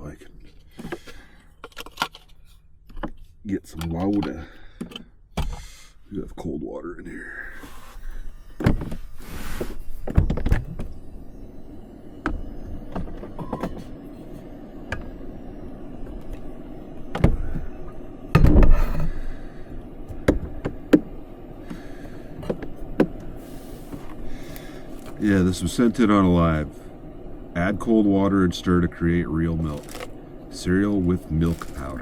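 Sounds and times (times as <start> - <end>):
steady low hum: 0.0 - 32.0
lid or door opening and closing: 10.0 - 10.9.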